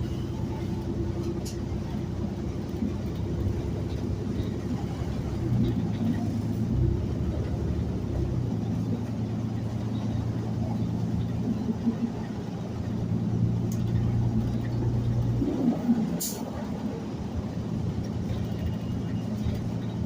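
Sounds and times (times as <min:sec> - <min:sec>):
bus engine drone: 0:00.0 - 0:20.0.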